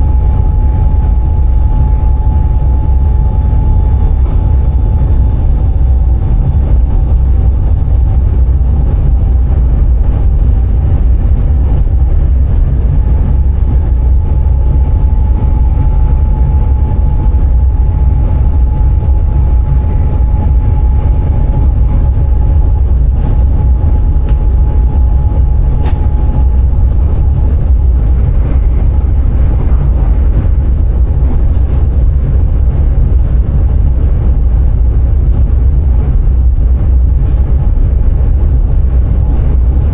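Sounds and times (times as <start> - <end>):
train motor whine: 0.0 - 9.8
train low rumble: 0.0 - 39.9.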